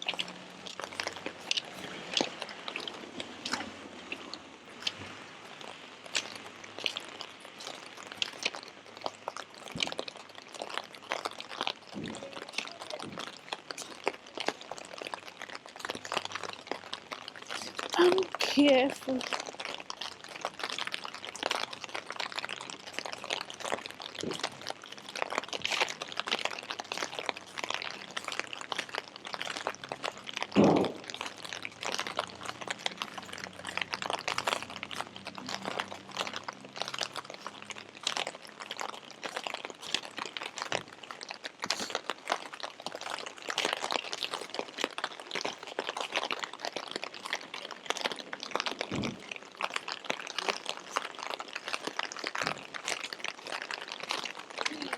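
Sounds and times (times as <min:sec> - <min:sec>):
rain patter: 0:00.0 - 0:54.9
dull thump: 0:30.6 - 0:31.0.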